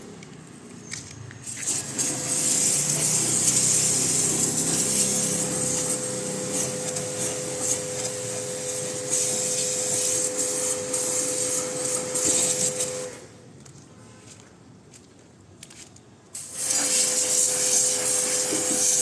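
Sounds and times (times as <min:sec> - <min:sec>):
pressure washer jet hissing: 0:01.4 - 0:13.2, 0:16.4 - 0:19.0
pump motor humming: 0:01.6 - 0:13.2.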